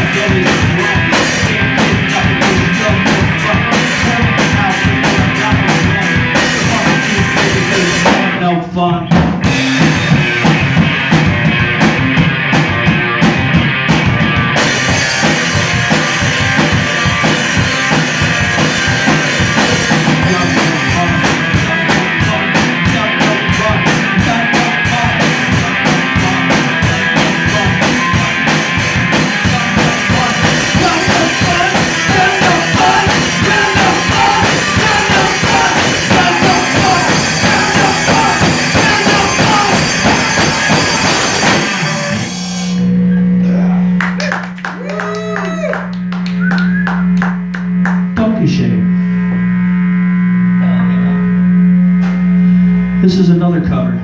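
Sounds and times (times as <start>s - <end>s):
drum kit beat: 0.0s - 43.1s, 44.1s - 48.8s
instrumental rock band: 0.0s - 54.0s
cymbals: 30.2s - 43.0s.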